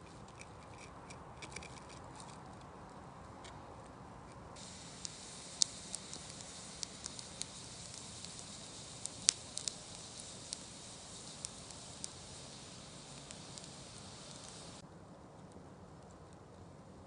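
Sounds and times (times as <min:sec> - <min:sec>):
campfire crackling and popping: 0:04.3 - 0:14.8.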